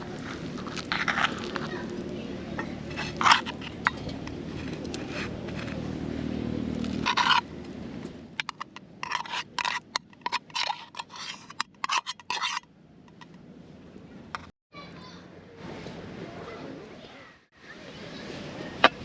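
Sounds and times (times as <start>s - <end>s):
quick scraping strokes: 2.7s - 5.9s, 6.8s - 7.4s, 8.4s - 12.6s.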